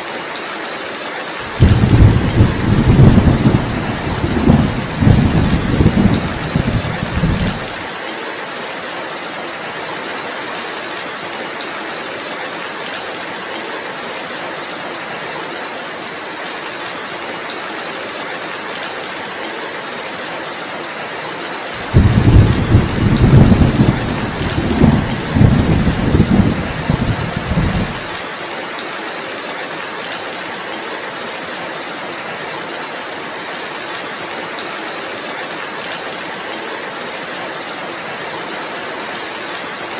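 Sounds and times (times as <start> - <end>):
heavy rain: 0.0 - 39.9
thunder rumbling: 1.5 - 7.8, 21.8 - 28.2.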